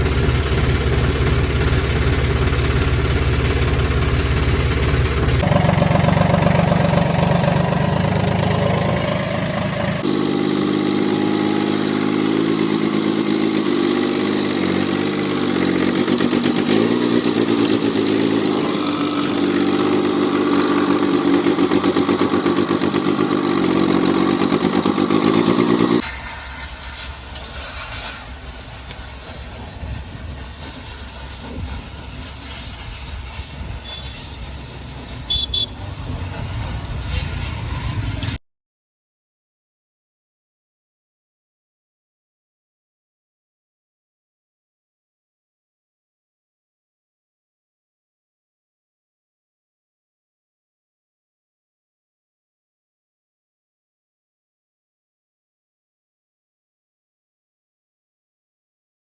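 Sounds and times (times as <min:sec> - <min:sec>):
tractor diesel engine revving: 0:00.0 - 0:38.4.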